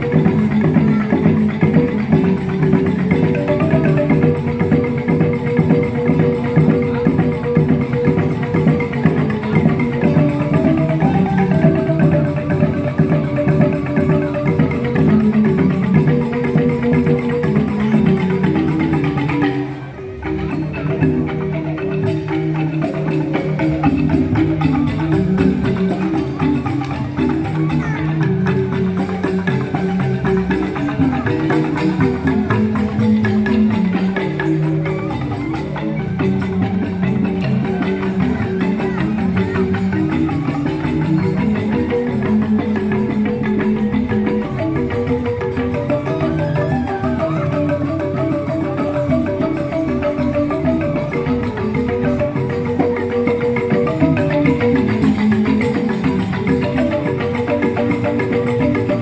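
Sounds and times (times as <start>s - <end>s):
bamboo xylophones interlocking: 0.0s - 59.0s.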